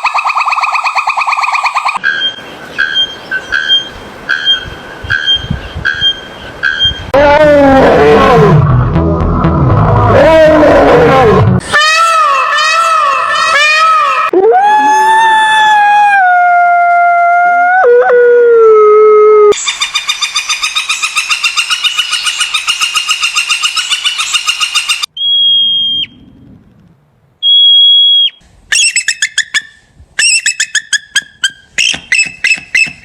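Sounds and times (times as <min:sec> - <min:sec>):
long descending animal call: 0:07.2 - 0:19.6.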